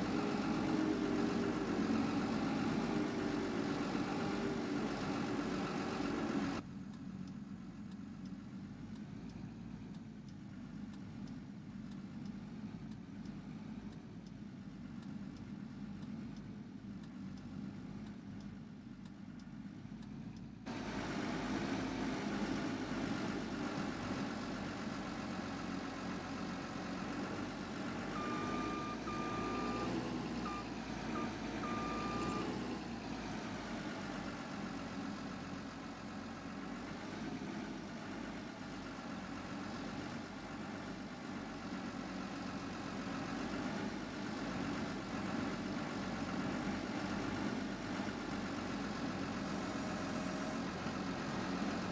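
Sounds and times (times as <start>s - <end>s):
truck engine revving: 0.0s - 6.6s, 20.7s - 40.6s.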